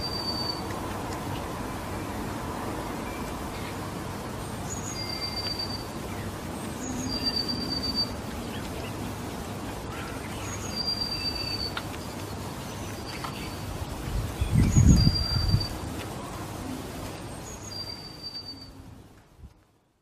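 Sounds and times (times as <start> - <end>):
songbird whistled call: 0.0 - 0.7, 4.7 - 6.0, 6.8 - 8.6, 10.3 - 11.8, 14.5 - 15.8, 17.4 - 18.8
steady background hiss: 0.0 - 20.0.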